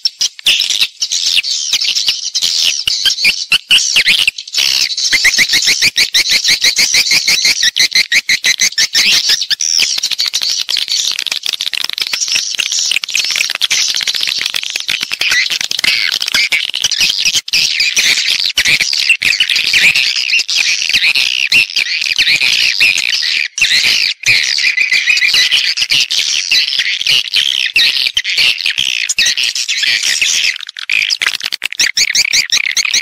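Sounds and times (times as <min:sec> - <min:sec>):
swiftlets chirping: 0:08.6 - 0:18.4.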